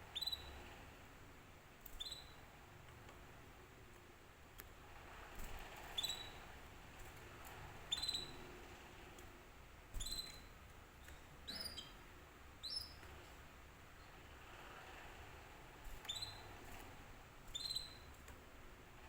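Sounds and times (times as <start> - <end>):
canary chirping: 0.1 - 0.6, 1.9 - 2.4, 5.9 - 6.4, 7.8 - 8.4, 10.0 - 13.1, 15.8 - 16.8, 17.5 - 18.1.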